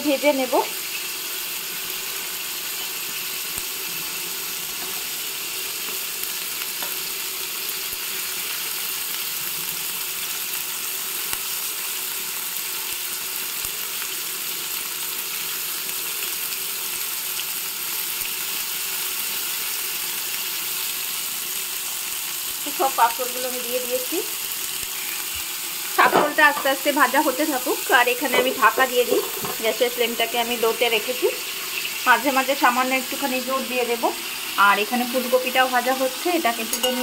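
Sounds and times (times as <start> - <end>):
vegetables sizzling in oil: 0.0 - 37.0.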